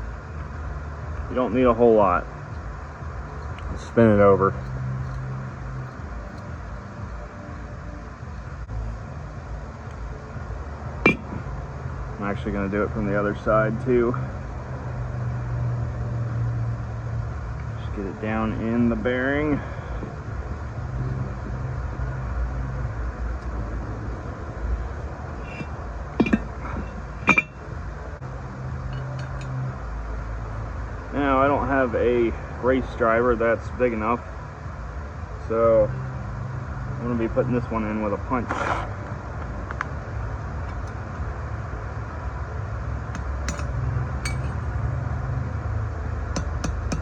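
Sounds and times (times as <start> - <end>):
steady low rumble: 0.0 - 47.0
metallic clinks: 4.5 - 6.6, 25.4 - 27.7, 28.9 - 29.6, 43.2 - 44.8
hammer tapping a metal punch: 11.1 - 11.4, 27.3 - 27.5, 43.1 - 44.6, 46.4 - 47.0.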